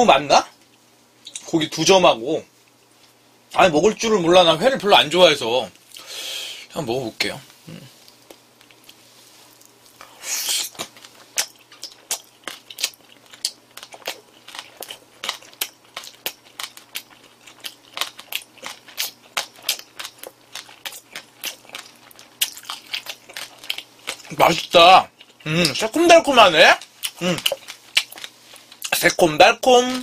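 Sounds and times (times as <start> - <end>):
person biting food: 9.6 - 16.4
wet chewing clicks: 9.6 - 26.0, 26.8 - 29.2.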